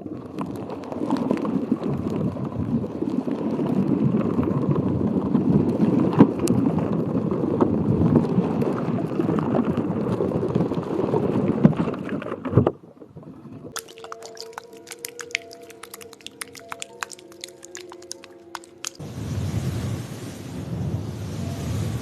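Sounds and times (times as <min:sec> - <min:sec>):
water sloshing and gurgling: 0:11.0 - 0:19.9.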